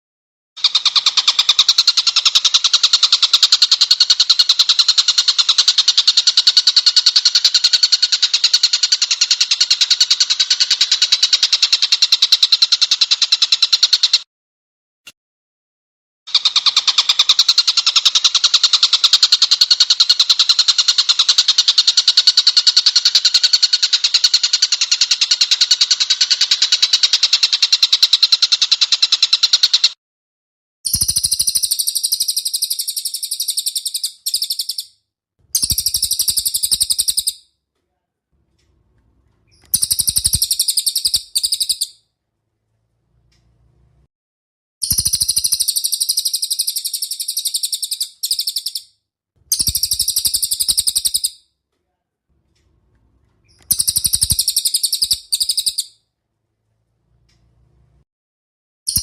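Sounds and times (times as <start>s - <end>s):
songbird trilling: 30.9s - 34.9s, 35.5s - 37.4s, 39.5s - 42.0s, 44.8s - 48.9s, 49.5s - 51.4s, 53.4s - 56.0s.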